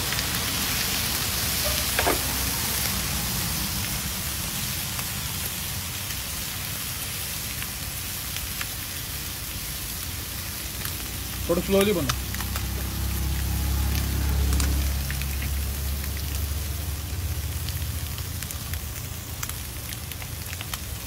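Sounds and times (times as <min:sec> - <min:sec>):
eggs sizzling on a griddle: 0:00.0 - 0:21.0.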